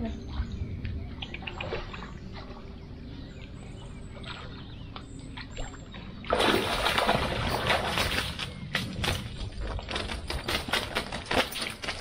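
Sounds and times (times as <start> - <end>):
low steady outdoor noise: 0.0 - 12.0
fish splashing at surface: 6.3 - 8.5.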